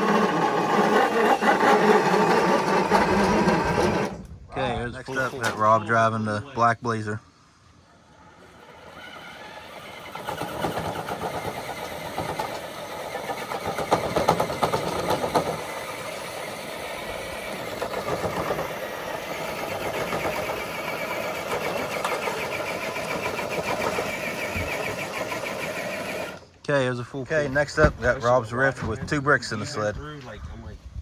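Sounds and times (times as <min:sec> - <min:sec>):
electric motor and gear whine: 0:00.0 - 0:05.7, 0:08.1 - 0:26.6.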